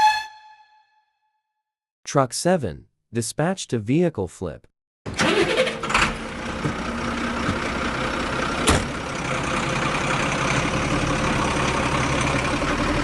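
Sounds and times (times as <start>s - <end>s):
heavy truck engine running: 5.1s - 13.0s.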